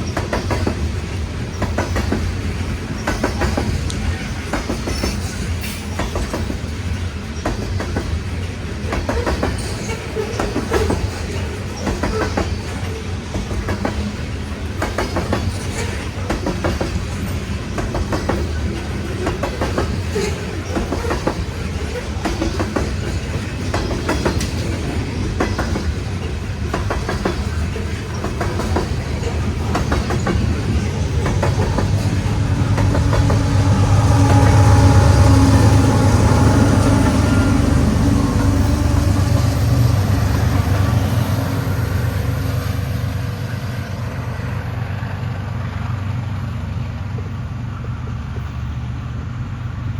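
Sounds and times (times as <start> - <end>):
wheels clicking over rail joints: 0.0 - 34.8
freight cars rumbling: 0.0 - 49.9
low engine drone: 31.4 - 40.9.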